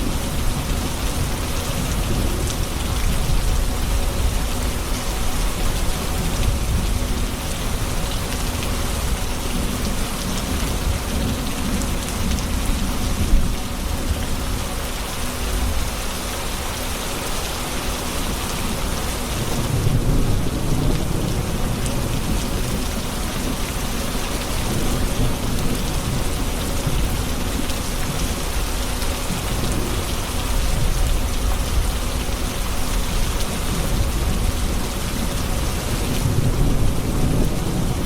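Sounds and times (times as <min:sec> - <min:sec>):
rain on hard surfaces: 0:00.0 - 0:38.0
low rolling thunder: 0:19.3 - 0:38.0.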